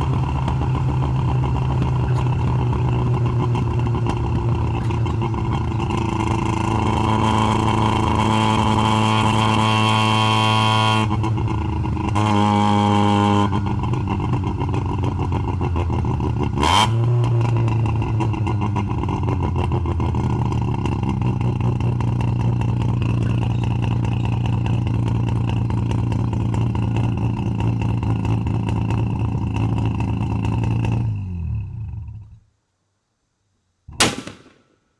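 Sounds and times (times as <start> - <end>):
rotary engine running: 0.0 - 9.6
sharp crack: 33.9 - 34.9.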